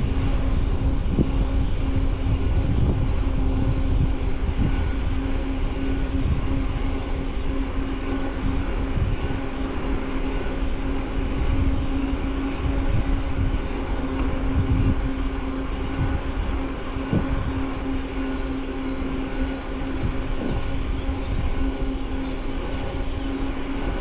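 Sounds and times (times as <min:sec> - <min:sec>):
constant hum: 0:00.0 - 0:24.0
wind on microphone: 0:00.0 - 0:24.0.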